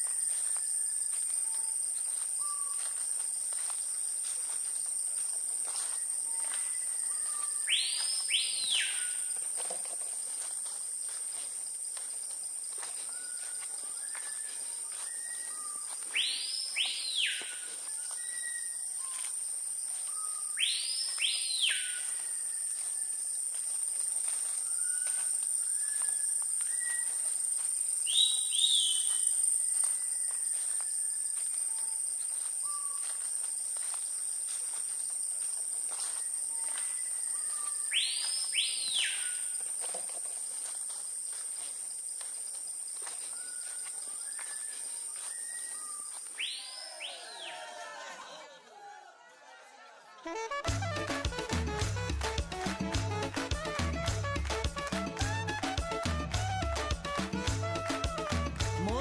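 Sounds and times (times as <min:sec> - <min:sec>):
bird paired whistles: 0:45.3 - 0:47.2.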